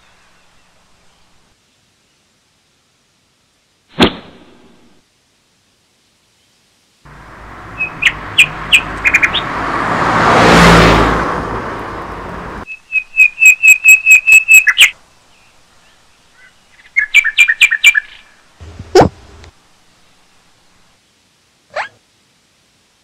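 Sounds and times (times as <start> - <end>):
small bird chirping: 7.8 - 9.5, 12.7 - 19.1.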